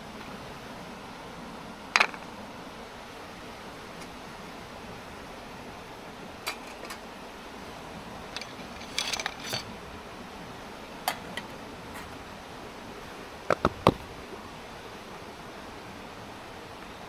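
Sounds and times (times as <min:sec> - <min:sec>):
steady background hiss: 0:00.0 - 0:17.0
gear clicking and clinking: 0:08.2 - 0:09.8.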